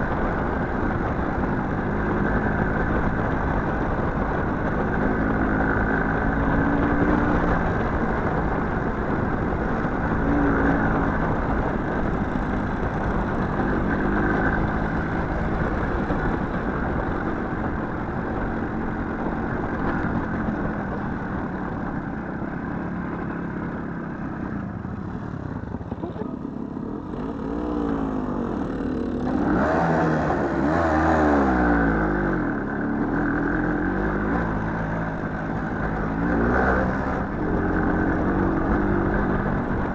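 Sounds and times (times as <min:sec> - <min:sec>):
small motorcycle engine revving: 0:01.8 - 0:18.6, 0:25.5 - 0:39.9.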